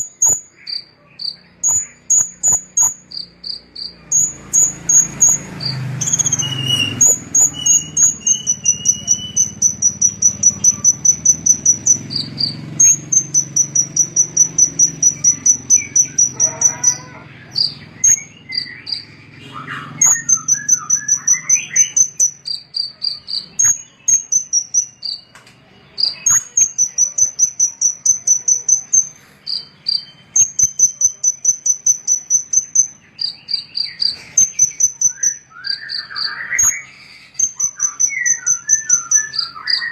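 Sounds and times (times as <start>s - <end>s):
songbird trilling: 0.0s - 39.9s
low whistled bird notes: 1.7s - 25.2s.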